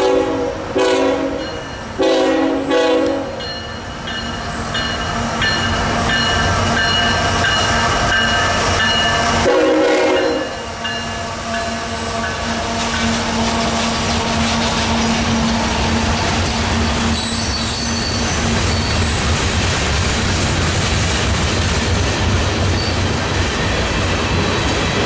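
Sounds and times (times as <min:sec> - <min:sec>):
train horn: 0:00.0 - 0:03.5, 0:09.3 - 0:16.0
diesel locomotives droning: 0:00.0 - 0:25.0
freight cars rumbling and clattering: 0:12.3 - 0:25.0
wheel squeal: 0:16.6 - 0:19.2, 0:22.7 - 0:23.1.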